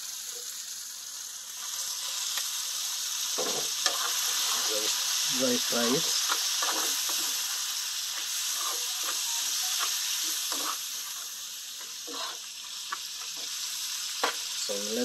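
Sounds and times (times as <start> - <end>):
food sizzling in a pan: 0.0 - 15.0
metal spoon scraping a pan: 3.4 - 4.8, 5.8 - 13.5.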